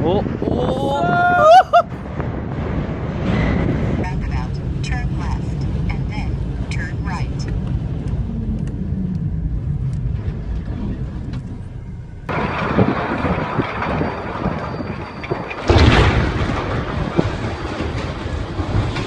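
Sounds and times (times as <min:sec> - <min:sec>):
vehicle engine rumble: 0:00.0 - 0:19.0
traffic noise: 0:01.1 - 0:19.0
loud noisy burst: 0:12.3 - 0:18.8.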